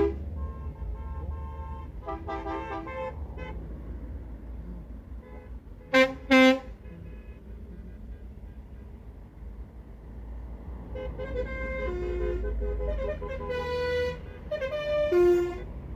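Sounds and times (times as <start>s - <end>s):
lorry horns tooting: 0.0s - 3.6s, 5.2s - 9.0s, 11.0s - 15.9s.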